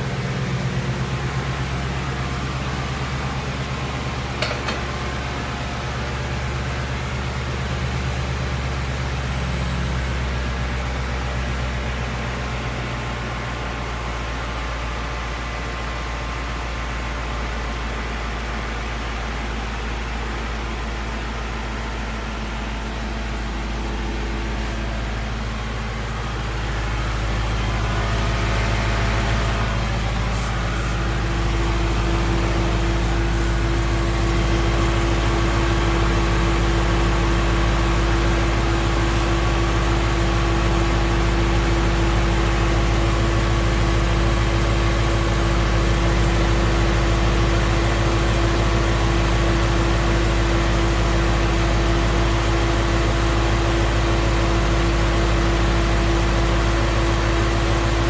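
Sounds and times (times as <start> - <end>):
car engine idling: 0.0 - 58.0
steady whine: 22.4 - 41.4.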